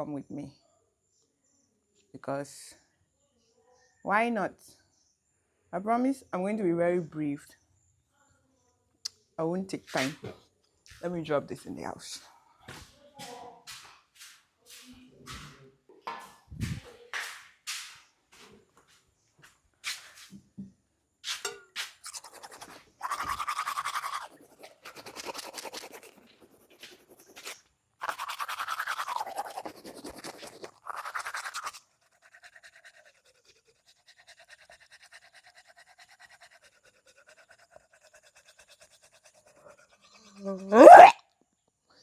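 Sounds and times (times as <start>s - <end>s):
toothbrush scrubbing teeth: 9.9s - 10.3s, 13.2s - 15.6s, 21.3s - 41.1s.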